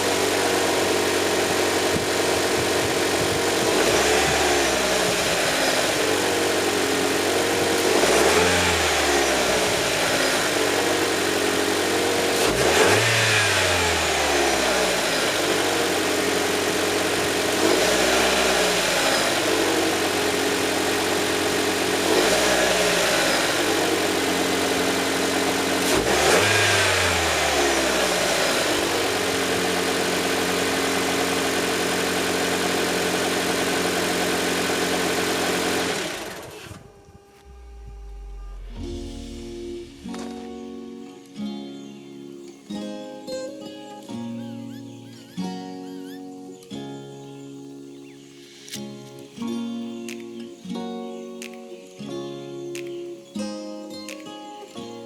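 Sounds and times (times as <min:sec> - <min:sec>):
car engine idling: 0:00.0 - 0:40.3
engine throttle blips: 0:00.0 - 0:40.5.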